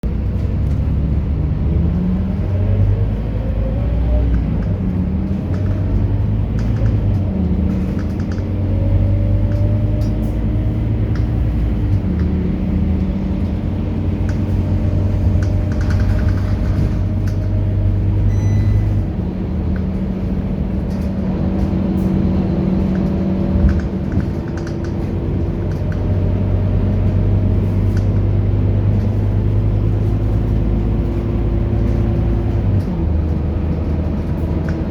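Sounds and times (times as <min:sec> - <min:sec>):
bus diesel engine accelerating: 0:00.0 - 0:34.9
short high beep: 0:18.3 - 0:19.0.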